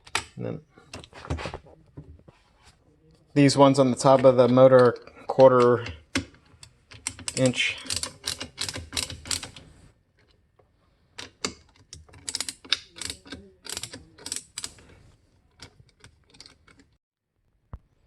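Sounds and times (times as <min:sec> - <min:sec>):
hand ratchet clicking: 0:05.6 - 0:09.6, 0:11.2 - 0:14.8.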